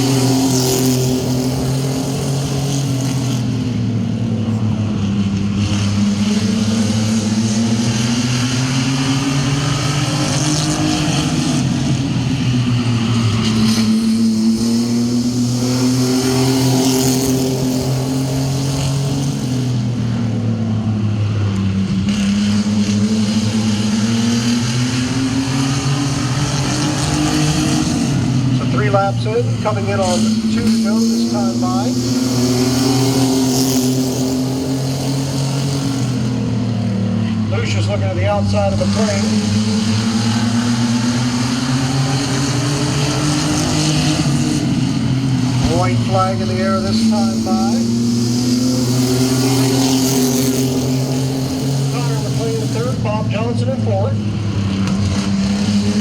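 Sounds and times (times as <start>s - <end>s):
racing truck engines accelerating: 0.0s - 56.0s.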